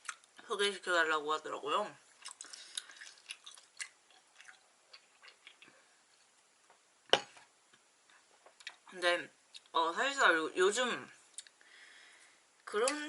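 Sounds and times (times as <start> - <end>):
person chewing food: 0.0 - 0.4, 2.1 - 6.5.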